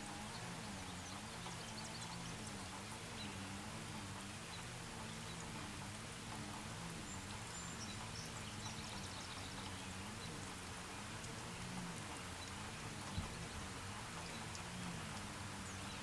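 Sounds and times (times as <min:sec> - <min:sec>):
light rain hiss: 0:00.0 - 0:16.0
low wavering hum: 0:00.0 - 0:16.0
faint drop ticks: 0:03.9 - 0:16.0.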